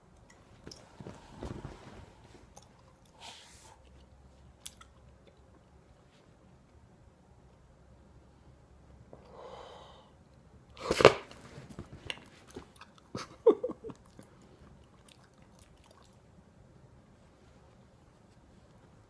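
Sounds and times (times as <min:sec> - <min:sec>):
puppy chewing and snuffling: 0:00.1 - 0:06.3, 0:11.0 - 0:16.4.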